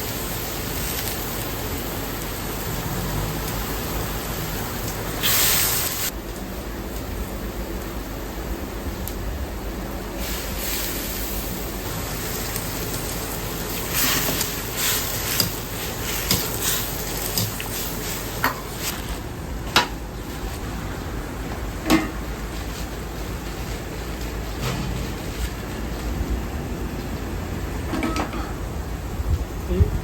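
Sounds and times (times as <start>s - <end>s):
stove and extraction rushing: 0.0s - 29.7s
utensils and bowls clinking: 13.9s - 18.9s.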